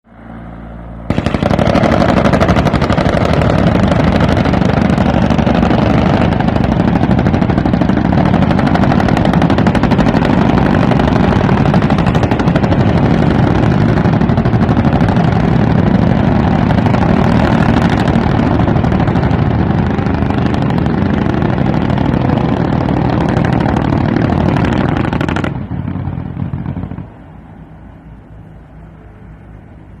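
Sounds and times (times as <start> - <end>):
helicopter engine noise: 0.2 - 30.0
helicopter rotor beating: 1.1 - 28.5.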